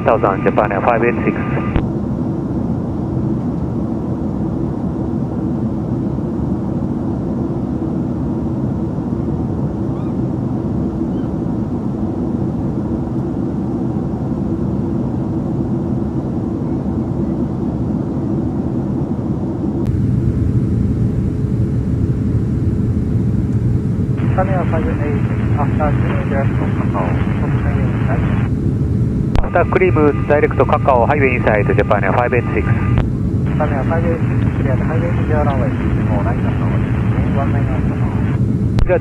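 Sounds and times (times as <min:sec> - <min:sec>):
steady hum: 0:00.0 - 0:03.0, 0:19.4 - 0:39.0
airplane engine and airflow rumble: 0:00.0 - 0:39.0.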